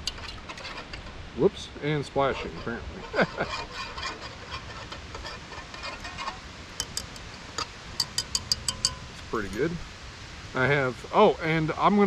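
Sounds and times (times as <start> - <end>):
metal spoon scraping a pot: 0.0 - 1.3, 1.9 - 9.8.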